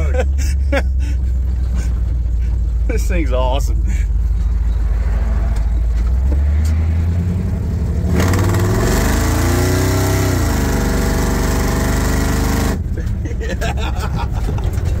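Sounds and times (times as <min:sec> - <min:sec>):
engine running and accelerating: 0:00.0 - 0:15.0
supercharger whine: 0:01.4 - 0:12.9.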